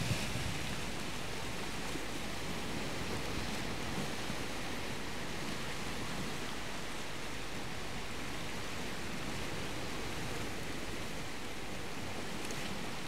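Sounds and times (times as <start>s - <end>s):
surf rushing on rocky shore: 0.0s - 13.0s.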